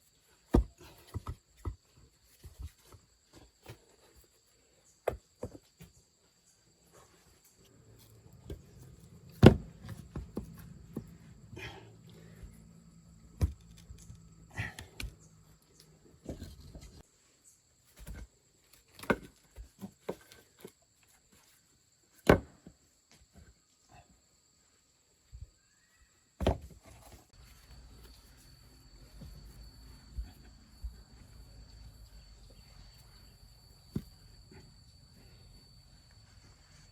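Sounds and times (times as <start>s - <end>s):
sharp knocks and thuds: 9.3s - 11.3s
low hum: 27.4s - 36.9s.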